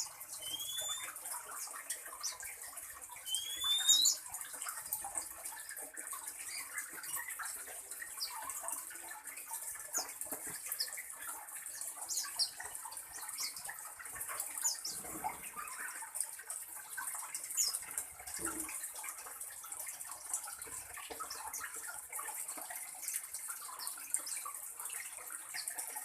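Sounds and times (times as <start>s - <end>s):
small birds chirping: 0.0s - 5.3s, 6.0s - 16.2s, 17.2s - 18.8s.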